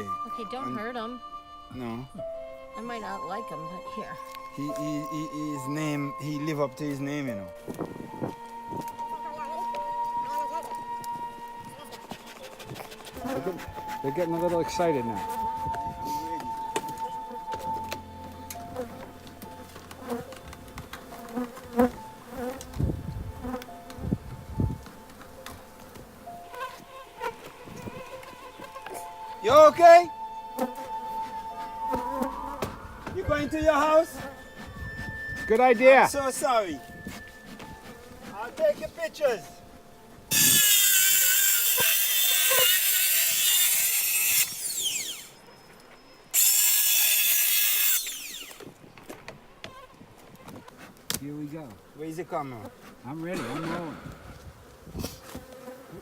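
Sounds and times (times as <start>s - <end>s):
honeybees buzzing: 0.0s - 45.6s, 49.6s - 56.0s
power saw cutting plywood: 40.3s - 45.4s, 46.4s - 48.8s
saw blade winding down: 40.3s - 45.5s, 46.4s - 48.7s.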